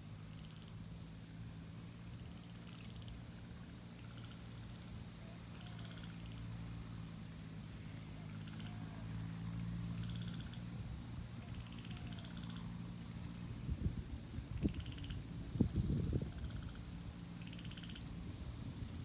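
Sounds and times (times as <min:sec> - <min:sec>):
faint high insect buzz: 0:00.3 - 0:19.0
frogs trilling: 0:05.5 - 0:06.4, 0:08.2 - 0:09.0, 0:10.0 - 0:10.7, 0:11.4 - 0:12.8, 0:14.6 - 0:15.3, 0:16.2 - 0:18.2.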